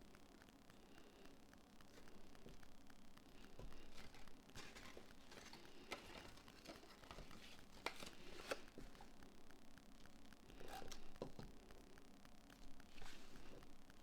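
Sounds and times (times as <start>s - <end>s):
paper rustling: 3.5s - 9.2s.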